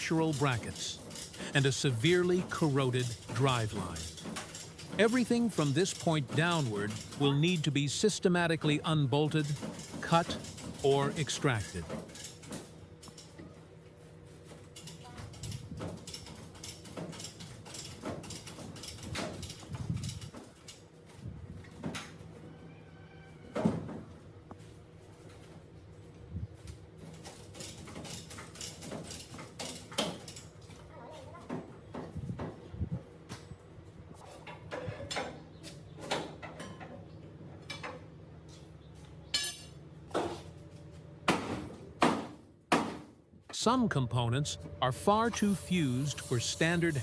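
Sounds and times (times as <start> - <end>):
metal tools clanking on steel: 0.0 - 13.5, 14.7 - 20.8, 34.3 - 37.0, 39.2 - 40.5.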